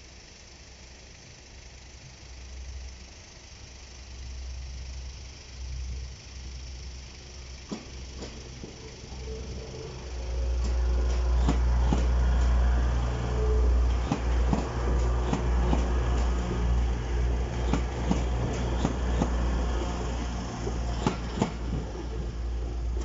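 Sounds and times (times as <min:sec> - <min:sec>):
train engine and rolling rumble: 0:00.0 - 0:23.0
wheels clacking over rails: 0:07.7 - 0:23.0.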